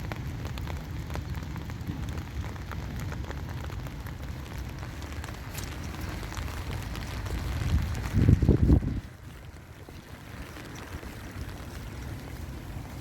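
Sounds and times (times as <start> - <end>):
small irregular ticks and crackles: 0.0 - 13.0
steady low rumble: 0.0 - 13.0.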